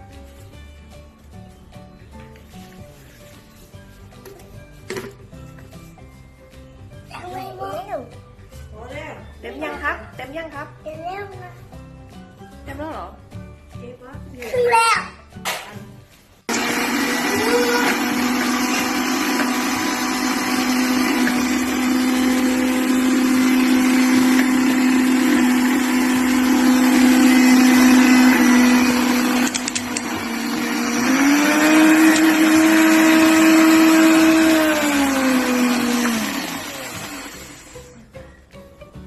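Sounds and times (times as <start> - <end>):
blender motor running: 16.5 - 38.0.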